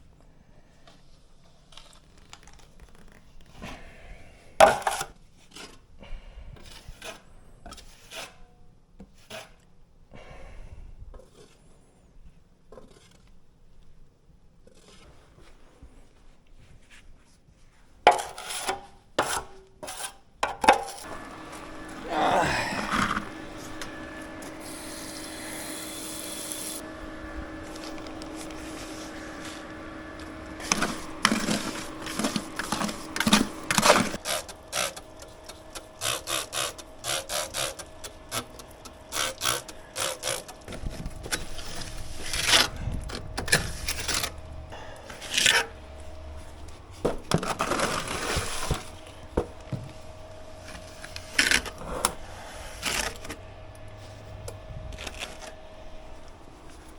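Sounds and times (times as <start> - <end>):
knocks taps and scrapes of tools: 18.1 - 21.6, 27.7 - 44.3
steady hum: 21.0 - 56.9.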